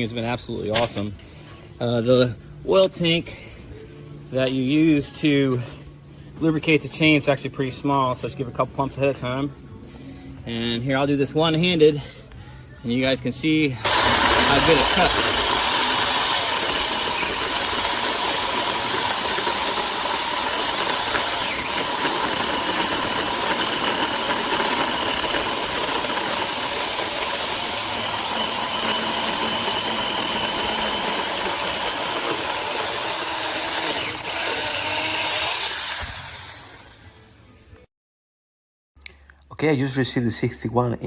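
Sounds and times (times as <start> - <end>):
electric chainsaw whine: 13.8 - 37.6
chain rasping through wood: 13.9 - 36.7.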